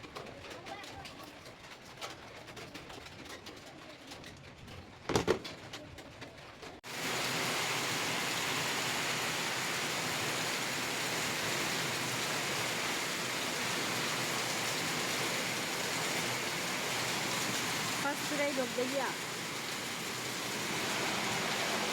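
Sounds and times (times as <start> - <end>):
heavy rain falling: 6.8 - 21.9.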